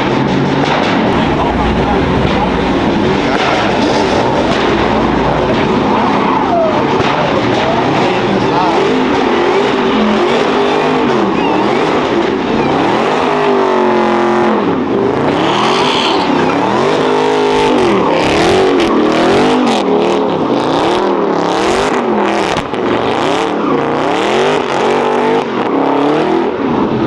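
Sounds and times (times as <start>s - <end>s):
car engine revving: 1.1s - 12.1s.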